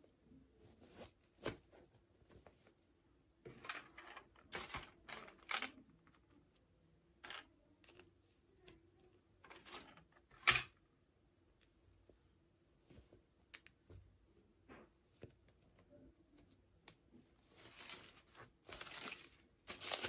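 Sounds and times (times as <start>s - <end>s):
plastic packaging rustling: 17.4s - 20.0s.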